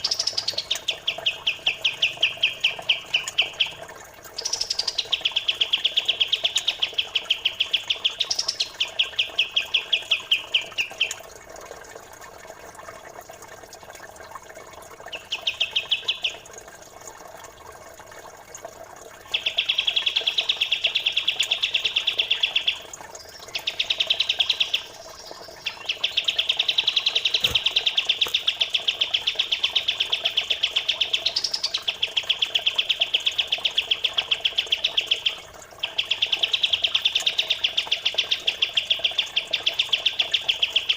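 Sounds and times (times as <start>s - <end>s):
songbirds chirping: 0.0s - 11.2s, 19.3s - 31.9s
faintly trickling water: 0.0s - 40.9s.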